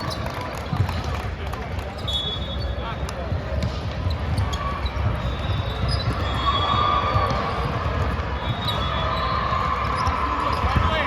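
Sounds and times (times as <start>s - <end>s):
volleyball hits: 3.1s - 11.0s.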